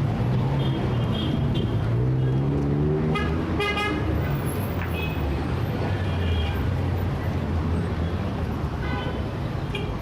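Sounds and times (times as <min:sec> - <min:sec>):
traffic engines rumbling: 0:00.0 - 0:10.0
vehicle engine accelerating: 0:01.9 - 0:03.5.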